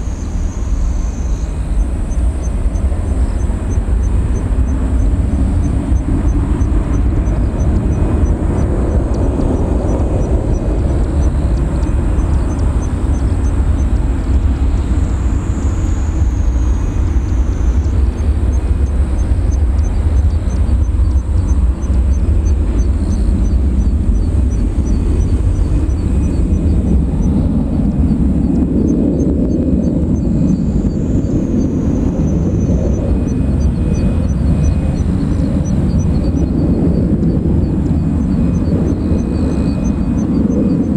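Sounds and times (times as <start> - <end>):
jet engines rumbling: 0.0 - 40.9
faint high chirp: 14.8 - 40.9.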